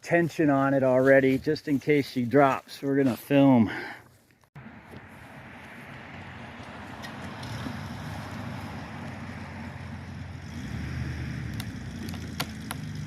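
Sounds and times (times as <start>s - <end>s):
chainsaw cutting wood: 10.7s - 13.0s.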